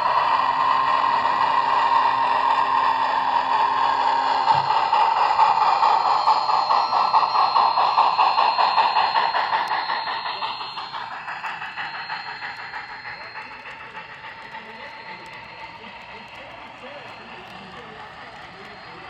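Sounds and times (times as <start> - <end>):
model train whirring: 0.0 - 19.0.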